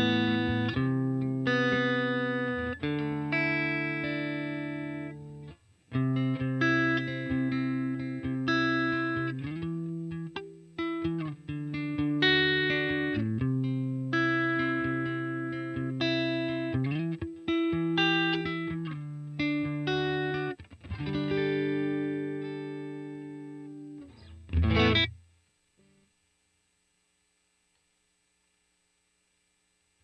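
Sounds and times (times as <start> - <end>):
electric guitar chords: 0.0 - 25.2.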